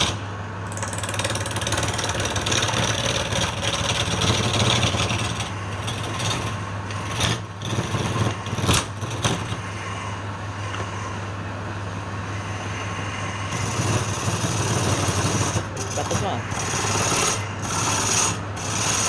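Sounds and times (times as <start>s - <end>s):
wood lathe motor hum: 0.0s - 9.8s, 12.6s - 19.0s
tool cutting wood hissing: 13.1s - 19.0s.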